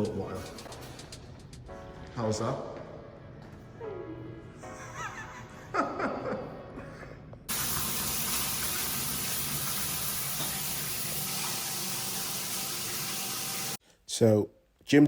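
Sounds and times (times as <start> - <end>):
shower spray hissing: 7.5 - 13.8.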